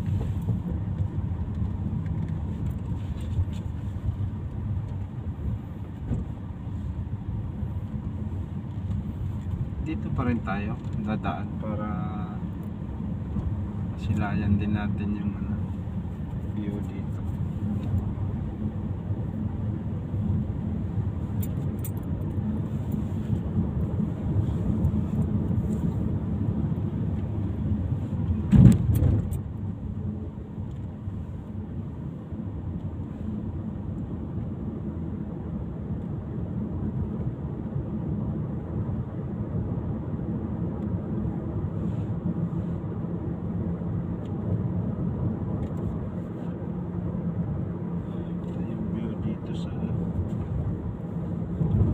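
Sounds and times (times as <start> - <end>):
car engine and road noise: 0.0 - 51.9
loud thump: 28.5 - 29.3.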